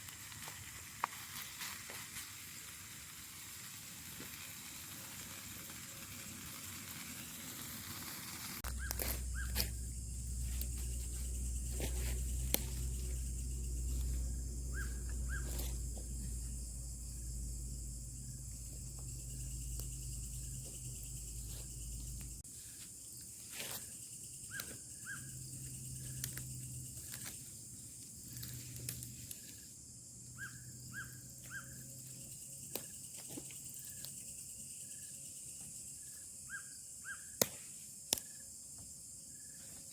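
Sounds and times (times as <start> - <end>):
steady high hiss: 0.0 - 15.6
bird chirps: 8.7 - 9.9, 14.7 - 15.6, 24.4 - 26.3, 30.3 - 31.9.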